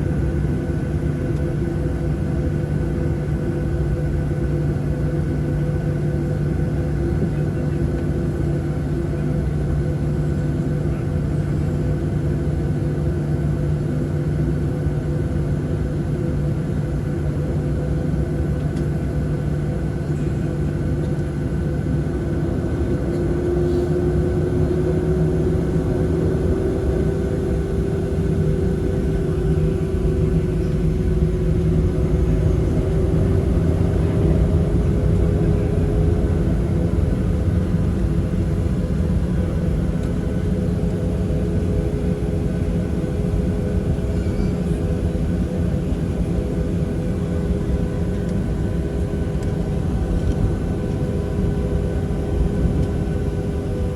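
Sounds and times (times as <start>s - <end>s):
airplane cabin engine rumble: 0.0s - 53.9s.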